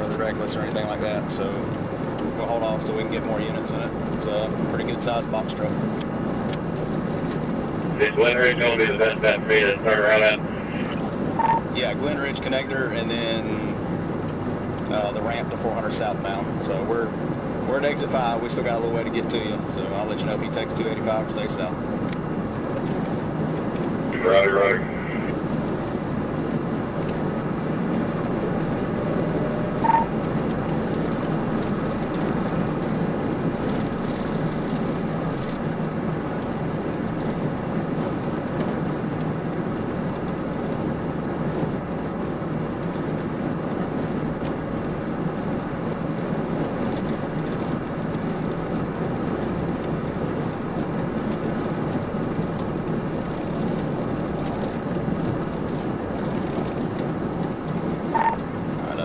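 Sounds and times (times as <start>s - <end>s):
car cabin road drone: 0.0s - 59.0s
short beep: 11.4s - 11.6s, 29.8s - 30.1s, 58.2s - 58.4s.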